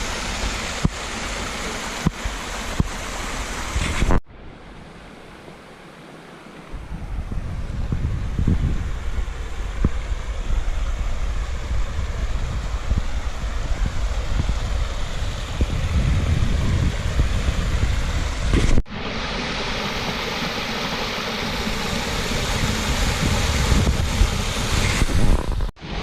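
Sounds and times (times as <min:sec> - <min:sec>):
waterfall rushing: 0:00.0 - 0:04.2
wind buffeting microphone: 0:06.7 - 0:18.8, 0:21.8 - 0:25.7.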